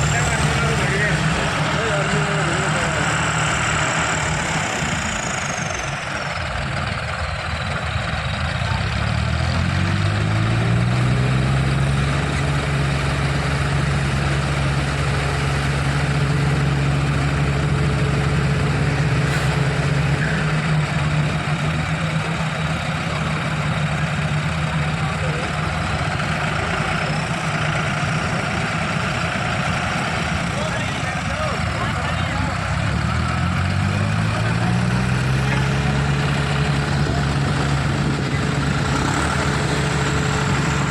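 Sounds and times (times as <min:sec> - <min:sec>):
diesel tractor engine revving: 0:00.0 - 0:40.9.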